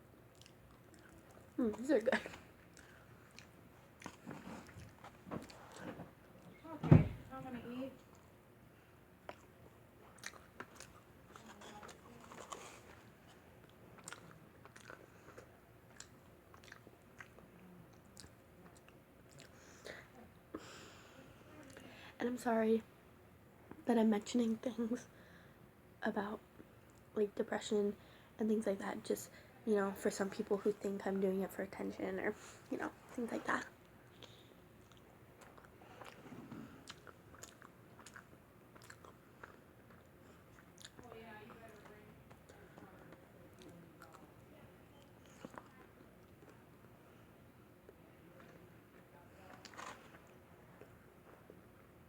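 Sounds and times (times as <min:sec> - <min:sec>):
chewing pizza: 0:00.2 - 0:06.6, 0:08.0 - 0:21.9, 0:32.4 - 0:52.0.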